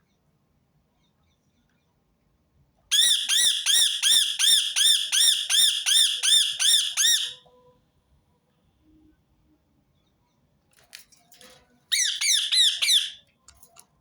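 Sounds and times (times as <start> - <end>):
parakeet calling: 2.9 - 7.4, 11.9 - 13.2.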